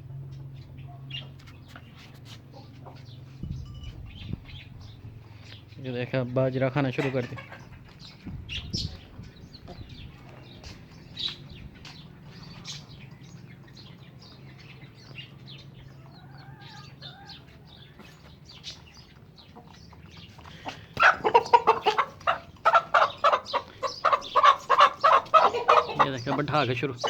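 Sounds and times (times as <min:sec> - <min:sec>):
chickens clucking: 0:00.3 - 0:03.4, 0:06.4 - 0:27.0.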